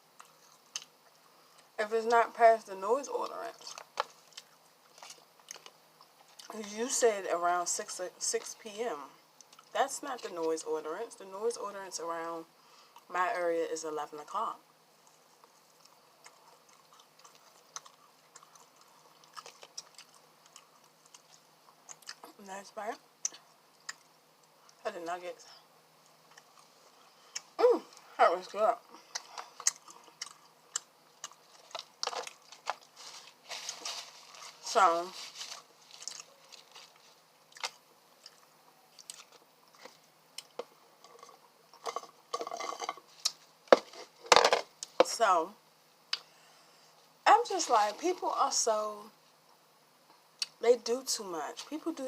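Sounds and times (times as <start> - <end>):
person chewing food: 0.0 - 1.8, 3.6 - 6.5, 9.4 - 9.7, 15.0 - 22.2, 23.2 - 24.8, 26.0 - 28.1, 28.9 - 34.6, 35.2 - 44.2
soft crunches: 31.2 - 41.3.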